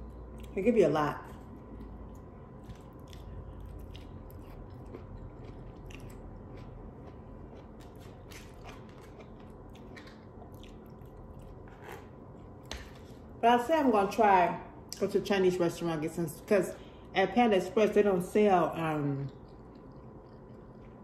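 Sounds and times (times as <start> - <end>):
person chewing and biting food: 1.4 - 12.7, 19.3 - 21.0.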